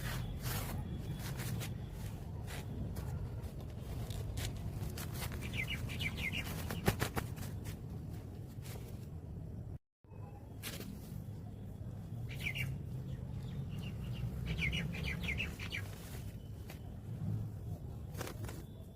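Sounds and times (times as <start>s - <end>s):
bird chirping: 5.4s - 7.0s, 12.1s - 16.6s.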